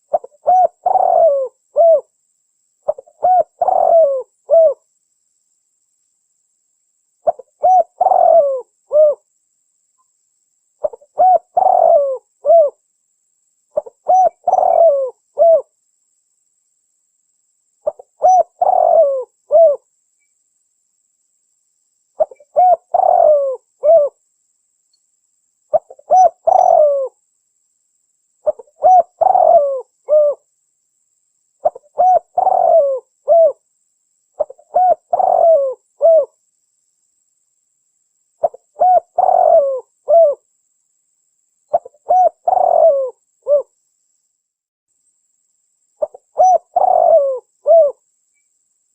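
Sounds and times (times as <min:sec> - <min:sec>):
dove cooing: 0:00.0 - 0:02.1, 0:02.8 - 0:04.8, 0:07.2 - 0:09.3, 0:10.8 - 0:12.8, 0:13.8 - 0:15.7, 0:17.8 - 0:19.8, 0:22.2 - 0:24.2, 0:25.7 - 0:27.2, 0:28.4 - 0:30.4, 0:31.6 - 0:33.6, 0:34.4 - 0:36.4, 0:38.4 - 0:40.4, 0:41.7 - 0:43.7, 0:46.0 - 0:48.0.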